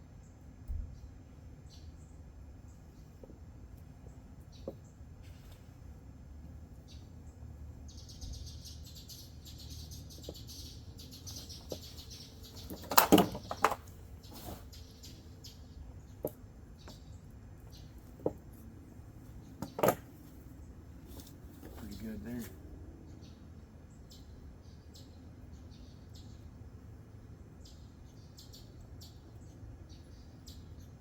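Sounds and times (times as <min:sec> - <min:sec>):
parts knocking and clattering: 0:12.6 - 0:14.5, 0:18.0 - 0:18.6, 0:19.6 - 0:20.2.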